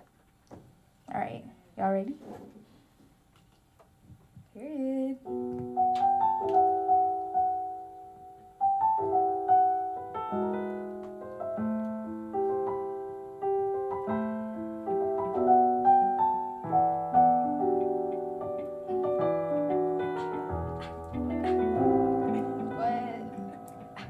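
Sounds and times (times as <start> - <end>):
piano playing slow chords: 5.2 - 24.0.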